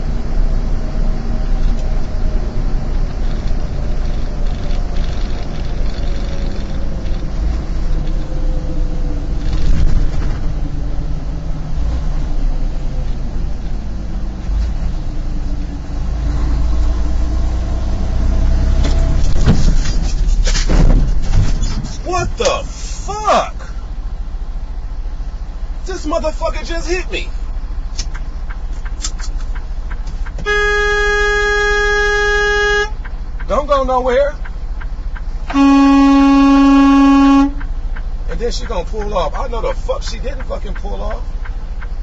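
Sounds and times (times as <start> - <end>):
engine and road rumble: 0.0 - 42.0.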